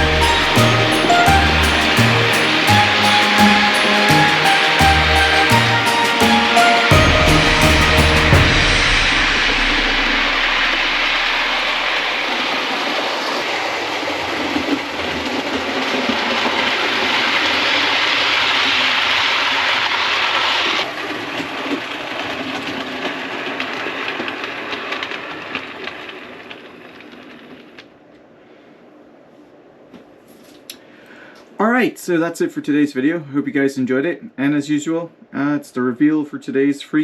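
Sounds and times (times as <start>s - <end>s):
model train rolling on track: 0.0s - 27.8s.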